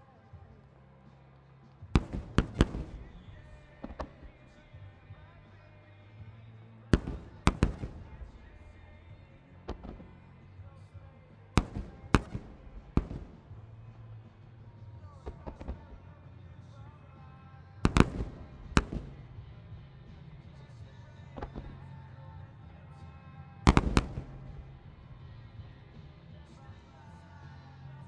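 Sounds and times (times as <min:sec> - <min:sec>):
music playing: 0:00.0 - 0:28.0
firework shells bursting: 0:02.0 - 0:04.4, 0:07.0 - 0:10.3, 0:11.6 - 0:14.6, 0:17.9 - 0:19.5, 0:23.7 - 0:25.2.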